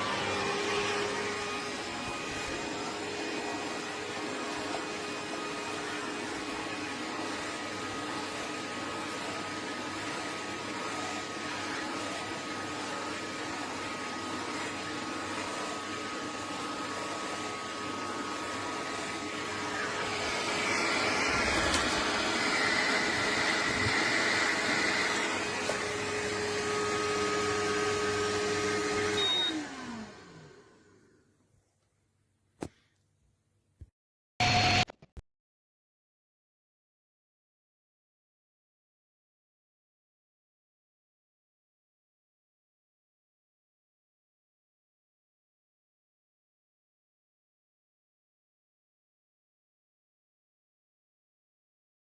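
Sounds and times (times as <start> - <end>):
grooming vacuum whining: 0.0 - 31.4, 34.4 - 34.9.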